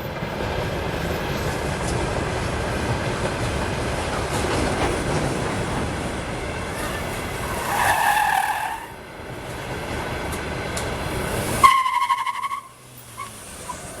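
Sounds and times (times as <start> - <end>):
road noise: 0.0 - 14.0
wheels squealing: 6.6 - 9.6, 10.8 - 14.0.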